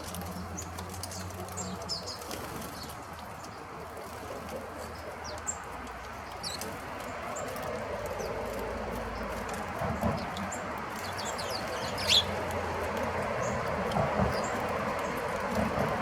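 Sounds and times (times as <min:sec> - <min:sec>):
small birds chirping: 0:00.0 - 0:16.0
downward sweeping bird call: 0:11.0 - 0:12.4.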